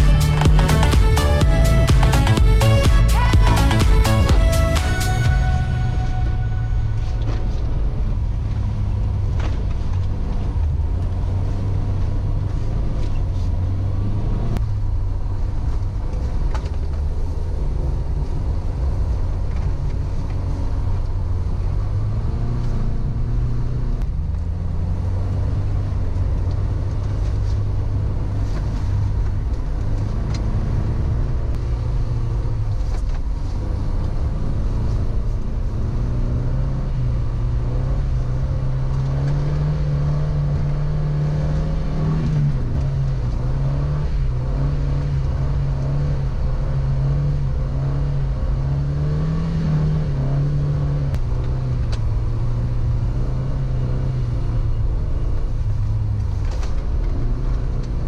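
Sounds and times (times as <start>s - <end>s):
car engine revving: 0.0s - 58.0s
road noise: 0.0s - 58.0s.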